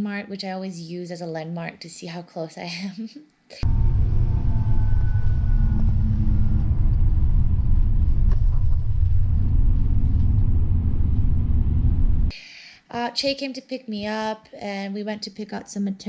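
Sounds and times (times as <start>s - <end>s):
road and engine rumble in vehicle: 3.6s - 12.3s.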